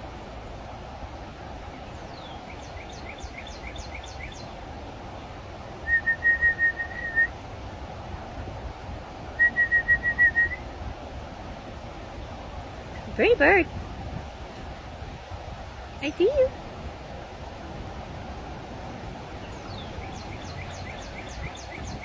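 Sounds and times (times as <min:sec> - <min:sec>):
bird song whistled notes: 0:01.7 - 0:04.6, 0:05.8 - 0:07.4, 0:09.4 - 0:10.7, 0:19.4 - 0:22.0.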